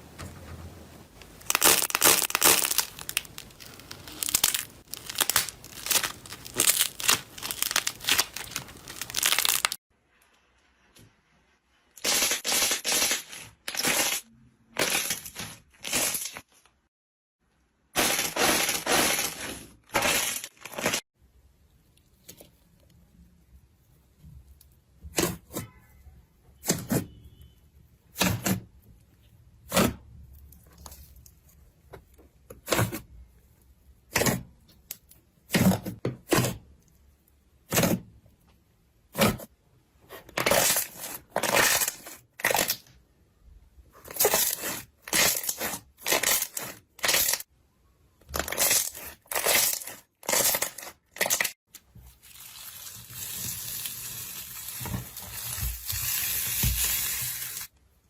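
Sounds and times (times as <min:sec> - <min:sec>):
slime crackling and popping: 0:01.4 - 0:09.8, 0:44.2 - 0:47.5.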